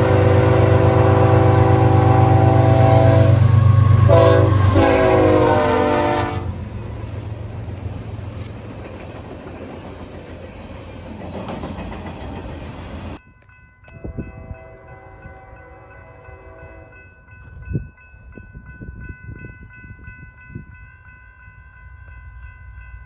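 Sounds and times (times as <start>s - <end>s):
locomotive horn blasts: 0.0s - 6.6s, 14.0s - 17.0s
railcar wheel noise: 0.0s - 23.0s.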